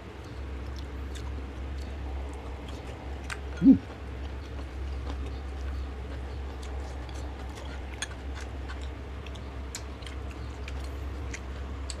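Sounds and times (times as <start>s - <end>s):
steady low hum: 0.0s - 12.0s
chewing: 0.2s - 12.0s
mouth clicks and smacks: 0.8s - 5.4s.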